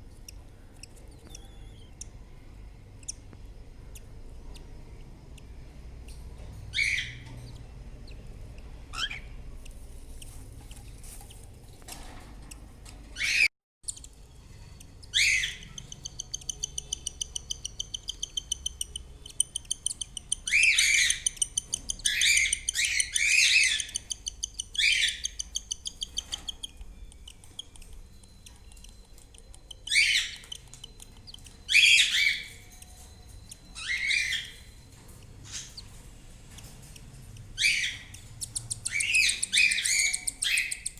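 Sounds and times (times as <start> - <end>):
cockatiels calling: 6.1 - 11.2, 13.2 - 14.0, 14.9 - 26.8, 29.9 - 40.9.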